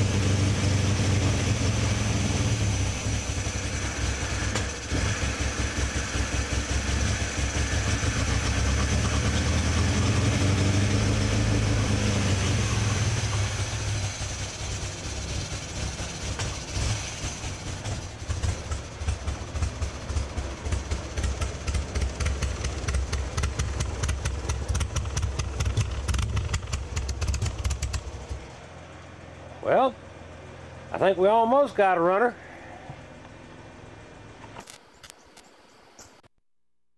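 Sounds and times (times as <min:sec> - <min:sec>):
car engine running: 0:00.0 - 0:32.2.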